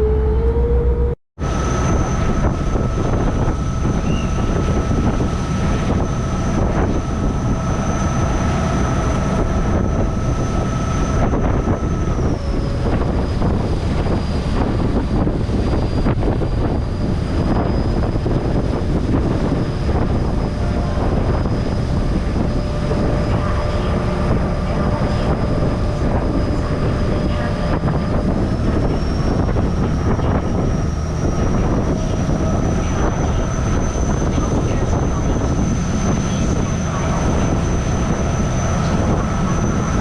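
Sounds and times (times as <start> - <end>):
boat engine running: 0.0 - 40.0
high whine: 0.0 - 40.0.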